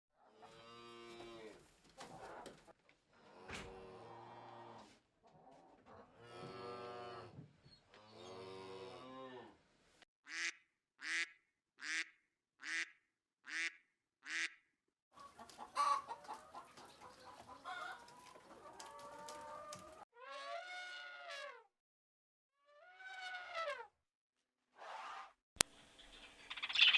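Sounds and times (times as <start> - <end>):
cattle mooing: 6.2 - 7.4
farm animal calls: 15.2 - 21.6.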